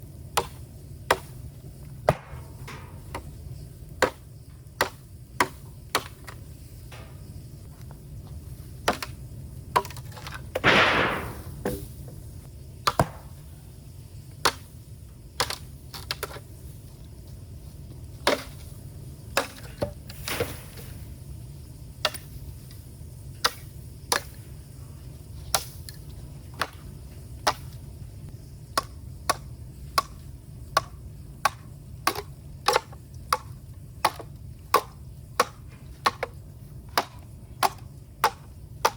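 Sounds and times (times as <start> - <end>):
low fire rumble: 0.0 - 9.8, 10.4 - 19.4, 20.0 - 38.8
bamboo fire crackling: 0.0 - 38.9
hissing burst: 10.6 - 12.0.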